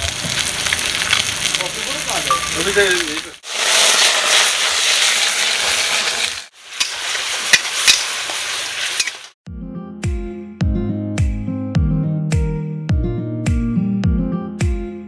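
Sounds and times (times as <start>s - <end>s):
oil popping: 0.0s - 8.4s
food sizzling in hot oil: 0.0s - 9.4s
music with a regular beat: 9.6s - 15.0s.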